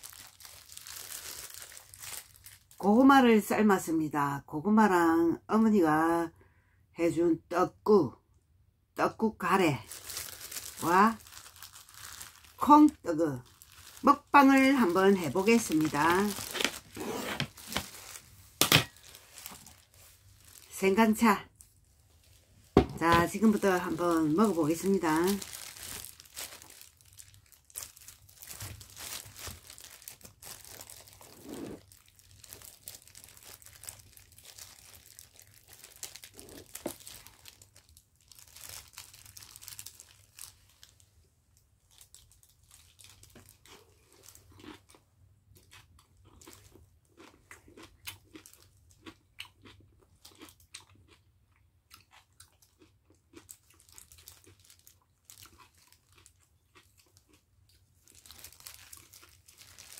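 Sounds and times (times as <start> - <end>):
crunchy chewing of kimchi: 24.7 - 41.0, 41.9 - 59.9.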